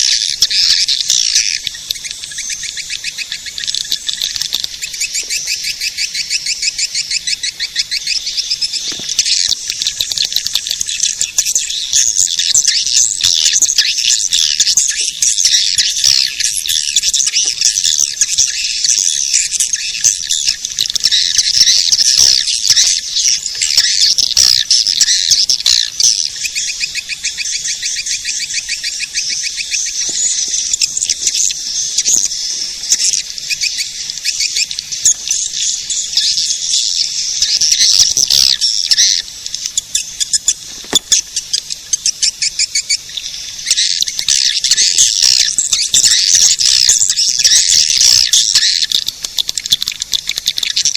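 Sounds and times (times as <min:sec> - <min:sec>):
swiftlets twittering: 0:00.0 - 0:50.9.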